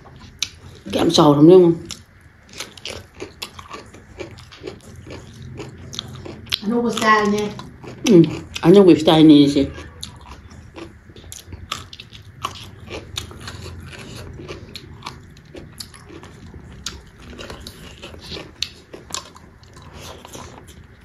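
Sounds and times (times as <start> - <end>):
person chewing and crunching food: 0.0 - 21.0.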